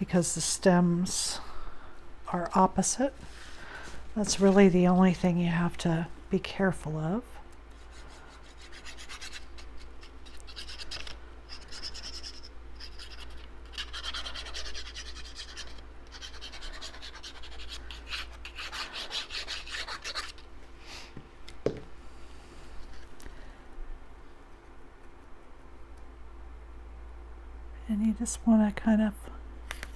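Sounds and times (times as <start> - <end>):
paper scratching and rubbing: 7.9 - 20.4.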